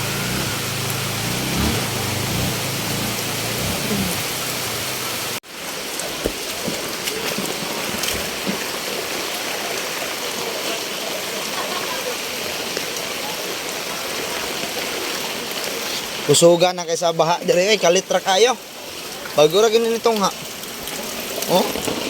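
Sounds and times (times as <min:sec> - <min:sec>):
fast-flowing floodwater rushing: 0:00.0 - 0:22.0.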